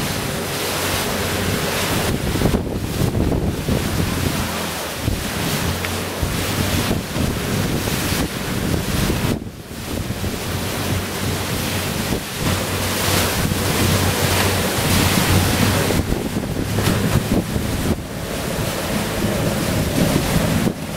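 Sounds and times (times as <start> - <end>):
rough sea rushing: 0.0 - 20.9
wind buffeting microphone: 0.0 - 20.9
low hum: 10.1 - 20.9.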